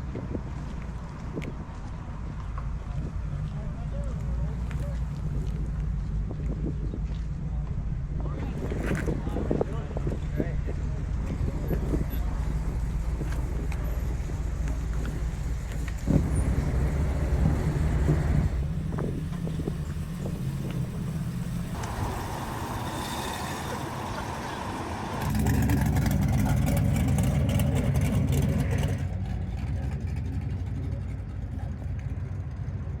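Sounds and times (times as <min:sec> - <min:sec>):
car engines rumbling: 0:00.0 - 0:33.0.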